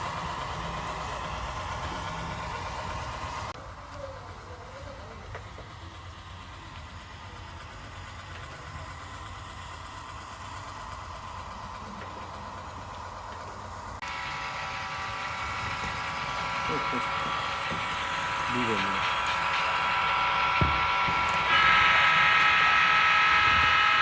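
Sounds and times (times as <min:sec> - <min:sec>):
model train rumbling on track: 0:00.0 - 0:24.0
bright hum with held tones: 0:05.1 - 0:24.0.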